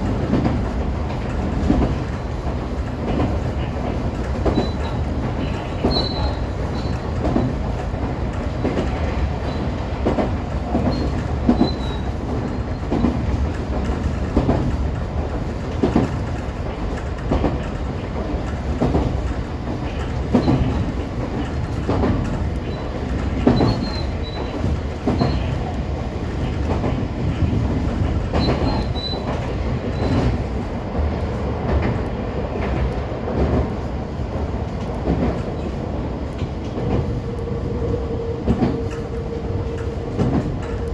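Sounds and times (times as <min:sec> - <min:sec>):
electric train rumble: 0:00.0 - 0:40.9.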